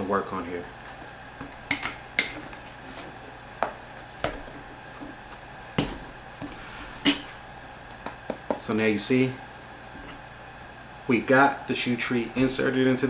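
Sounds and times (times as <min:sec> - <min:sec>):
shoe tree knocking into sneaker: 0:03.6 - 0:08.7.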